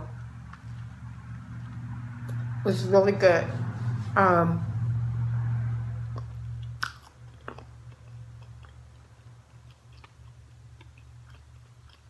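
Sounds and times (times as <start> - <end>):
steady low hum: 0.0 - 12.0
person chewing soft food: 0.2 - 2.6, 6.0 - 12.0
wet mouth clicks: 6.1 - 12.0.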